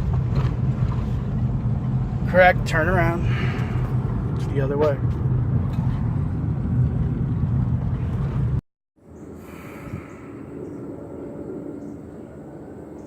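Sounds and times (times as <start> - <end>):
car engine inside moving car: 0.0 - 8.6
quiet outdoor background: 0.0 - 13.0.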